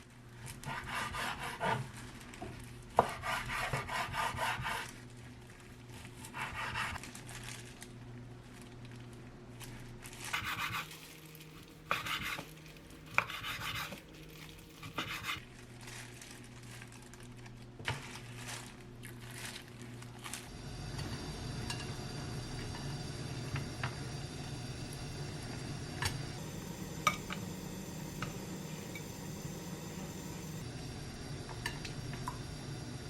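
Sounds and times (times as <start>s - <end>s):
low hum: 20.4s - 33.0s.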